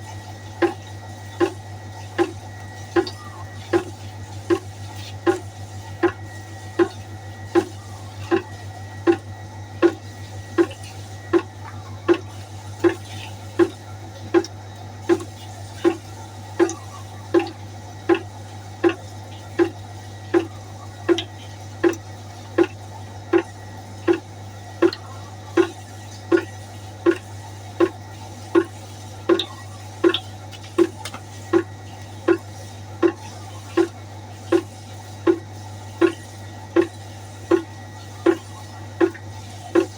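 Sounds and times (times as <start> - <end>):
water droplets plinking into pot: 29.3 - 31.7.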